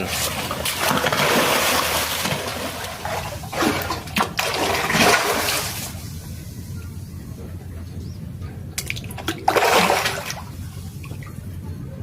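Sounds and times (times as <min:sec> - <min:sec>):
fish thrashing and splashing: 0:00.0 - 0:06.1, 0:08.8 - 0:11.3.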